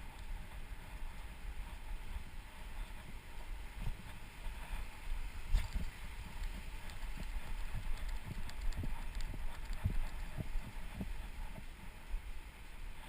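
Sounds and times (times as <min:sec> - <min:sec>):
faint clicks: 0:05.5 - 0:11.7.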